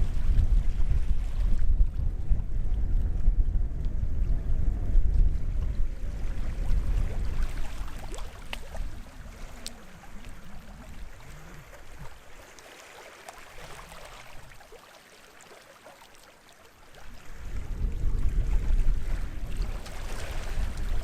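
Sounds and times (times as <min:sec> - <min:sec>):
wind buffeting microphone: 0:00.0 - 0:12.4, 0:17.1 - 0:21.0
small waves lapping at shoreline: 0:05.4 - 0:21.0
water splashes and clicks: 0:06.6 - 0:17.1, 0:19.7 - 0:21.0.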